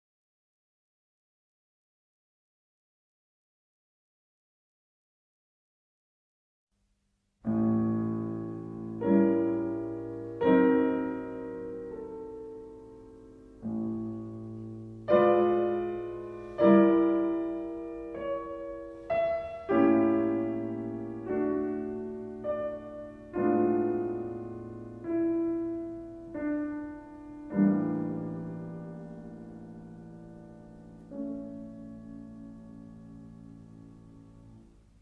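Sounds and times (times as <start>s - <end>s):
gentle solo piano music: 7.4s - 35.0s.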